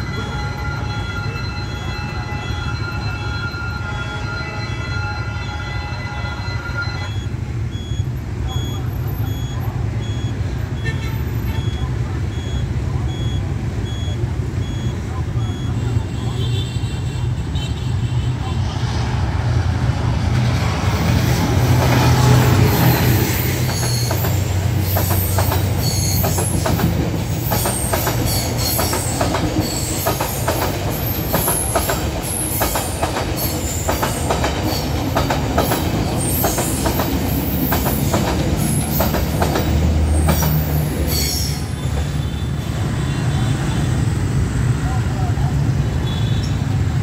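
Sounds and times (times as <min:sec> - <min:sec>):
wheel squeals: 0:22.6 - 0:26.8, 0:40.1 - 0:42.5.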